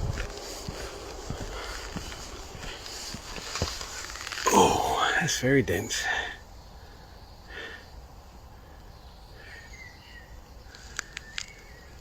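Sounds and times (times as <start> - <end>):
faint bird chirps: 6.5 - 12.0.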